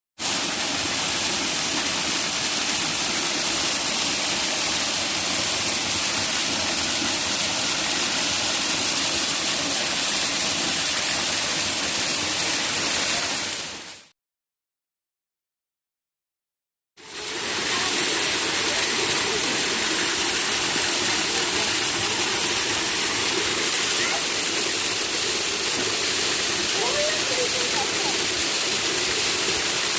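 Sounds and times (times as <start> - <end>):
waterfall rushing: 17.0 - 29.9.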